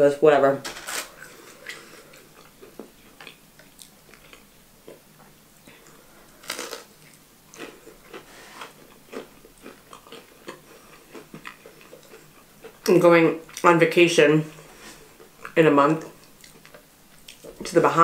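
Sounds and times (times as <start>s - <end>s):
person chewing fries: 0.9s - 13.7s, 14.5s - 17.7s.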